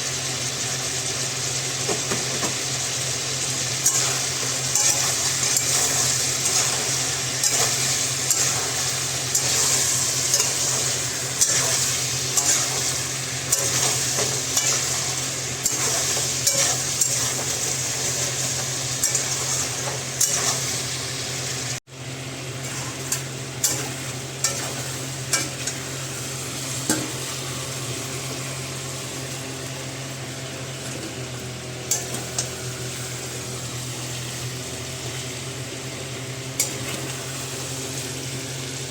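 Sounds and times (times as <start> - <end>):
food sizzling in a frying pan: 0.0 - 38.9
metal spoon scraping a pan: 3.8 - 20.9, 22.6 - 25.9.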